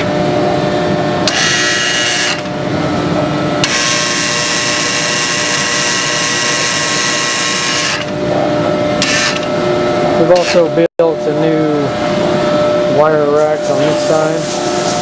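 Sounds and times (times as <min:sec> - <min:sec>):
steady low hum: 0:00.0 - 0:15.0
high-pitched drill-like whine: 0:03.6 - 0:08.1.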